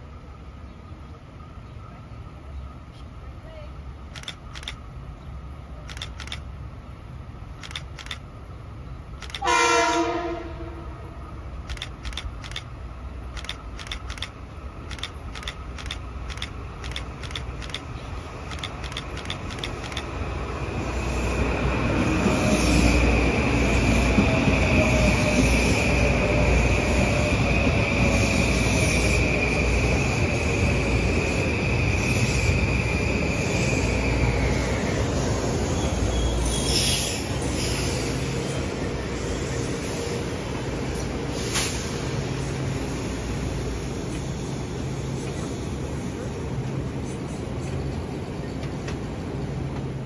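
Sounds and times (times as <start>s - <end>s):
high train whine: 0.0s - 50.0s
train horn: 9.4s - 11.2s
wheel-on-rail rumble: 10.4s - 50.0s.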